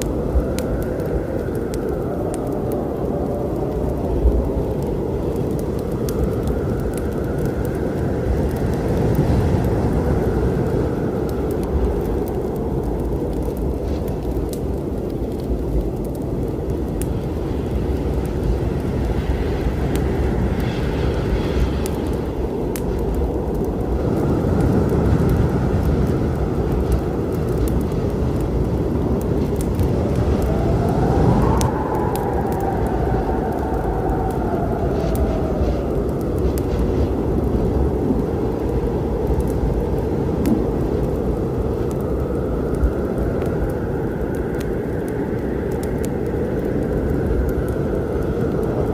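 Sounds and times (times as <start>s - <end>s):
storm wind rumbling: 0.0s - 48.9s
wood fire crackling: 0.0s - 48.9s.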